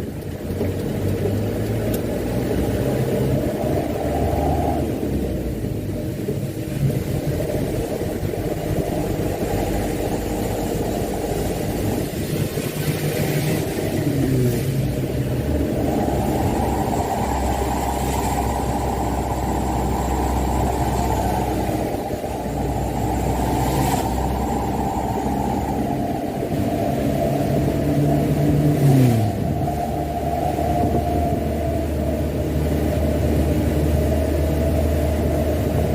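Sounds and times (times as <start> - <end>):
diesel truck engine driving: 0.0 - 35.9.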